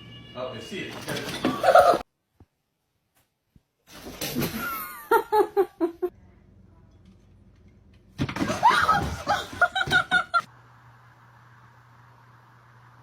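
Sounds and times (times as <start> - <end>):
person laughing: 1.6 - 2.0, 4.6 - 6.1, 8.5 - 10.5.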